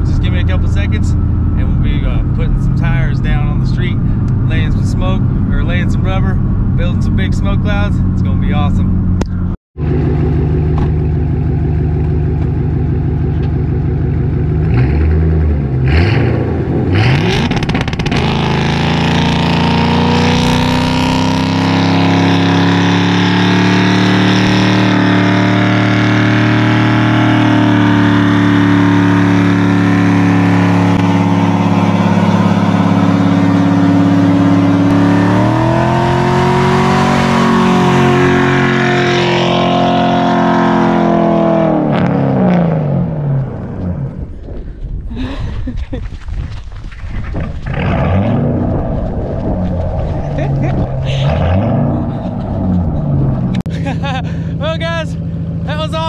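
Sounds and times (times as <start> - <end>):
car engine revving: 0.0 - 45.3, 47.4 - 56.0
tyres spinning on asphalt: 46.0 - 53.5.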